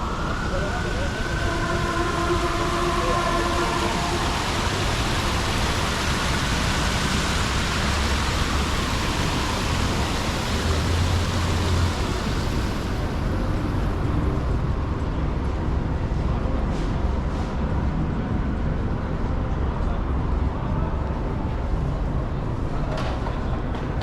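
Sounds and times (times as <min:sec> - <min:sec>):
traffic rushing hiss: 0:00.0 - 0:19.0
low engine rumble: 0:00.0 - 0:24.0.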